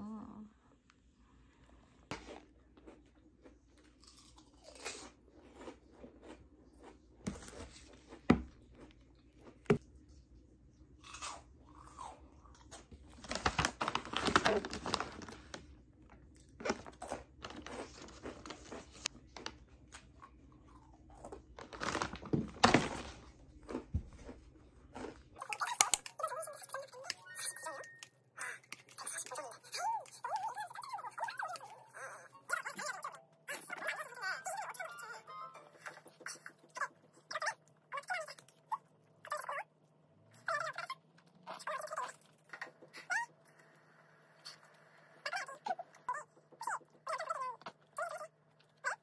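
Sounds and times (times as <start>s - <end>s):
food chewing and crunching: 1.5s - 27.8s.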